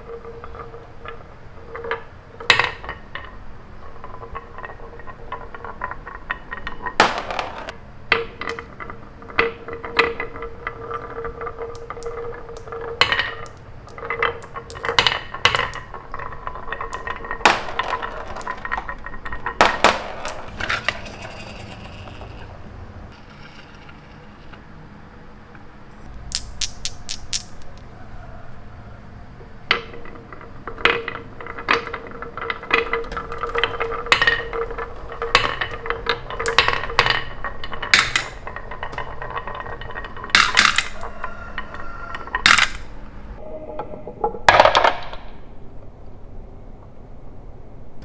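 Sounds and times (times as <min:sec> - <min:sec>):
toy pieces clinking together: 0:09.4 - 0:22.5, 0:26.1 - 0:27.9, 0:31.1 - 0:42.9.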